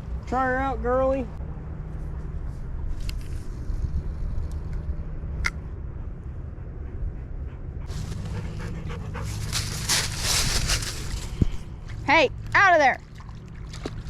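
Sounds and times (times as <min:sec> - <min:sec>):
steady low rumble: 0:00.0 - 0:14.0
dog panting: 0:05.6 - 0:10.8.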